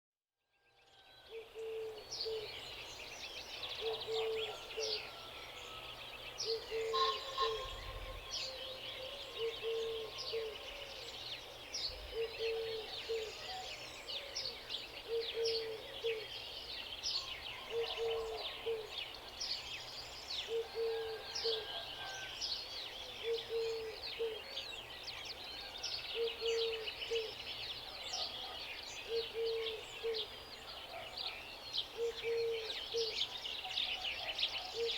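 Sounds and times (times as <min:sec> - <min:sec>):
small birds chirping: 0:06.1 - 0:34.9.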